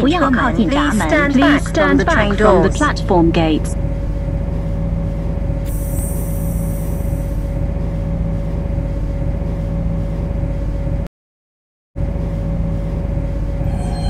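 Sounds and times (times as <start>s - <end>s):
metro train hum: 0.0s - 11.1s, 12.0s - 14.0s
high hiss: 5.6s - 7.4s.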